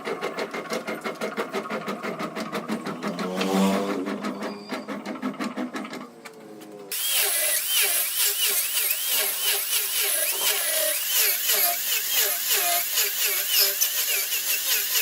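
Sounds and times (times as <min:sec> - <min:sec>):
power tools working wood: 0:06.9 - 0:15.0.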